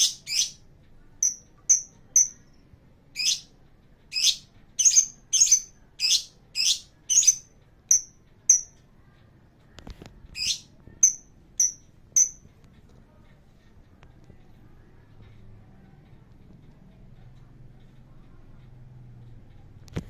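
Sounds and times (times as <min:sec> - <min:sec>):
lovebird squawking and chirping: 0:00.0 - 0:00.6, 0:01.2 - 0:02.4, 0:03.2 - 0:03.5, 0:04.1 - 0:08.7, 0:10.4 - 0:12.4.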